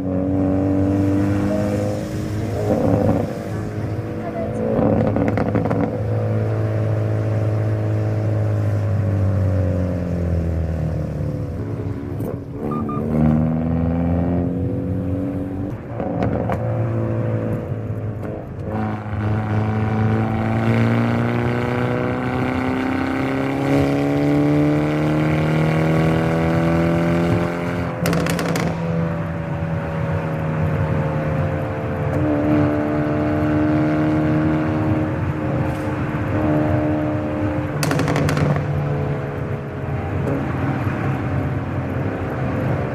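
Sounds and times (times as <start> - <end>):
car engine revving: 0.0 - 42.9
exhaust cracks: 37.8 - 38.9.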